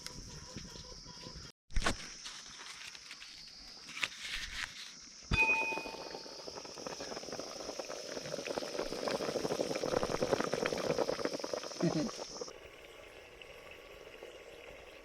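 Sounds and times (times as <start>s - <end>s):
steady high hiss: 4.8s - 12.5s
sharp metal clink: 5.3s - 6.2s
curry bubbling and sizzling: 5.8s - 15.0s.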